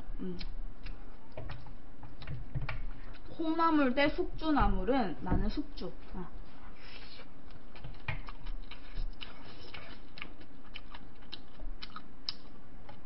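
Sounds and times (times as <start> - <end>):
person chewing food: 0.0 - 3.4, 6.0 - 13.0
wet mouth clicks and smacks: 7.8 - 12.5.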